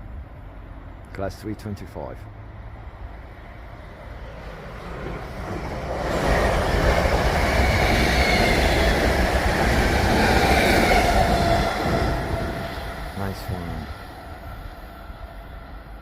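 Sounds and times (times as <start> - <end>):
train wheels rushing on rails: 3.7 - 16.0.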